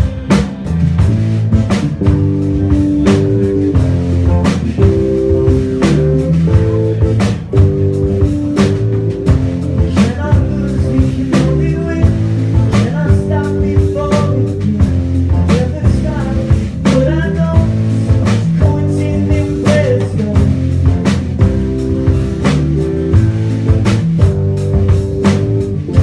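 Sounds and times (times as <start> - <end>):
bending guitar notes: 0.0 - 10.6
drum kit steady beat: 0.0 - 26.0
rock band playing: 0.0 - 26.0.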